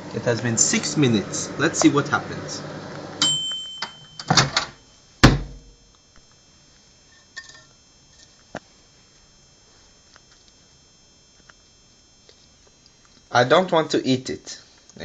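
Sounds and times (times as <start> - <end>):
microwave beep: 3.0 - 5.4.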